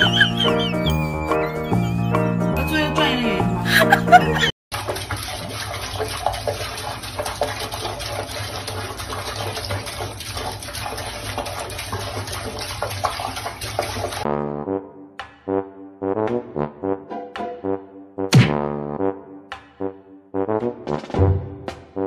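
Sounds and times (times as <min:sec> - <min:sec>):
music: 0:00.0 - 0:04.5, 0:14.3 - 0:22.0
water running from a tap: 0:04.7 - 0:14.3.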